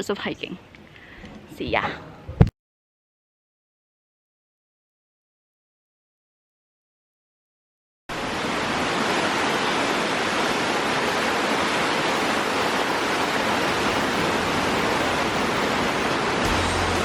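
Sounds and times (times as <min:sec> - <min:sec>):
river water rushing: 0:08.1 - 0:17.0.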